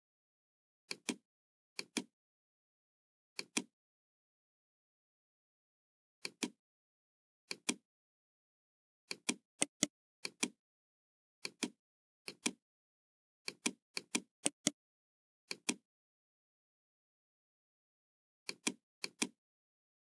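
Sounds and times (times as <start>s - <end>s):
computer mouse clicking: 0.9s - 1.2s, 1.8s - 2.1s, 3.4s - 3.7s, 6.2s - 6.6s, 7.5s - 7.8s, 9.1s - 10.6s, 11.4s - 12.6s, 13.4s - 14.8s, 15.5s - 15.8s, 18.5s - 19.4s.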